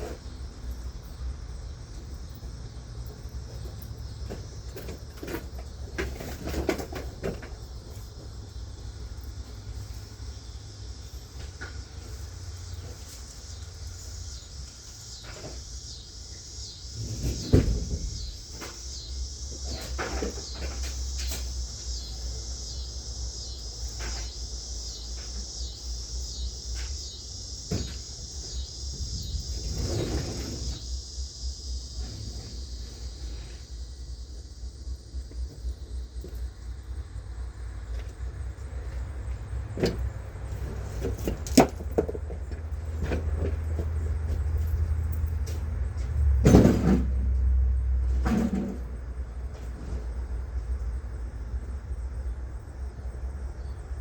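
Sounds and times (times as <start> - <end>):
steady high hiss: 7.7 - 37.8.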